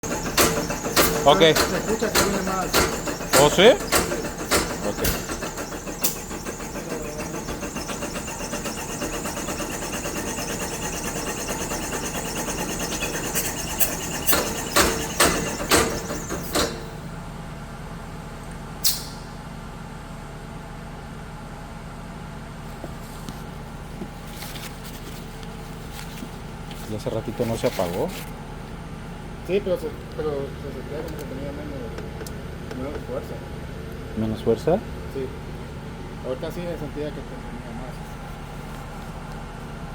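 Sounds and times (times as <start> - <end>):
electric motor turning an engine: 0.0 - 16.9
loud knocks: 0.0 - 16.9.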